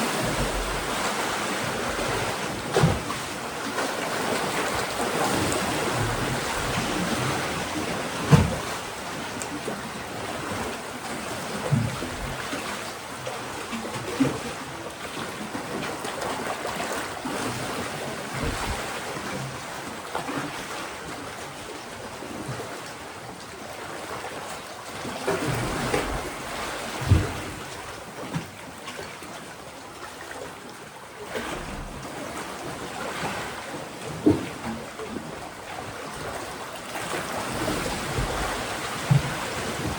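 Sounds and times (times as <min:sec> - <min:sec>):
sea waves washing: 0:00.0 - 0:10.8, 0:36.0 - 0:39.9
low thuds of water striking: 0:37.6 - 0:39.9.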